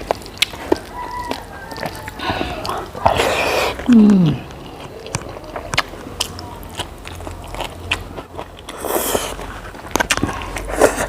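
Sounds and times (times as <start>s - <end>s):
crisp food crunching: 0.0s - 11.0s
wet chewing: 0.0s - 11.0s
breathy rush: 2.2s - 4.7s.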